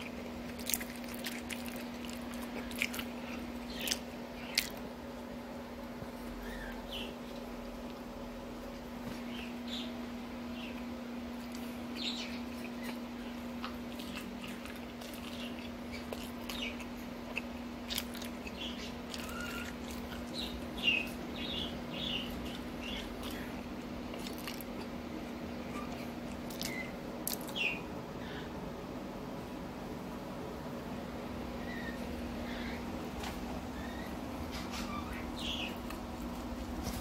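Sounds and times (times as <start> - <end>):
person chewing and smacking: 0.0 - 5.0, 11.4 - 27.6
steady low hum: 0.0 - 37.0.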